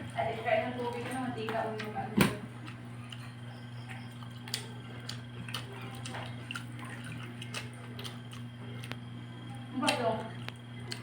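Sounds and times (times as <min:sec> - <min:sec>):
low electrical hum: 0:00.0 - 0:11.0
chewing clicks and smacks: 0:02.6 - 0:11.0.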